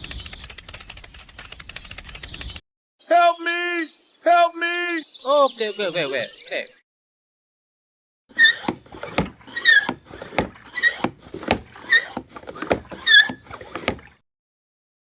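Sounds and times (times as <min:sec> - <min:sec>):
rhythmic squeaking: 0:08.3 - 0:14.0
knocking: 0:08.3 - 0:14.1.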